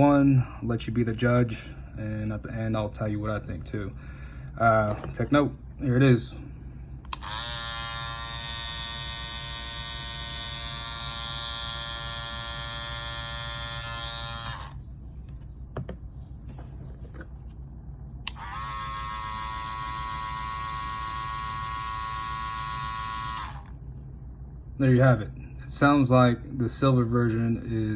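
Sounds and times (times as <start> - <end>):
hair clippers buzzing: 7.1 - 14.8, 18.3 - 23.8.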